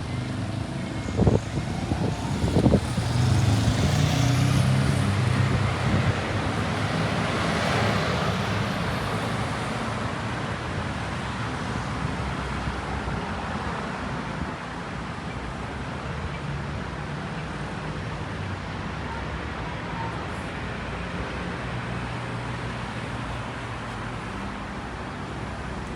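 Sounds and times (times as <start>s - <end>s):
vehicle passing: 0.0s - 12.4s
traffic rumble: 0.0s - 25.9s.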